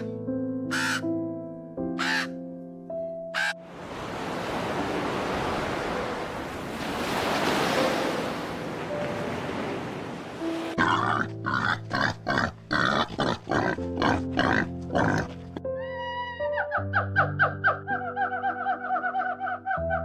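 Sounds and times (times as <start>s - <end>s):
background music: 0.0s - 20.0s
pig grunting: 10.8s - 15.6s.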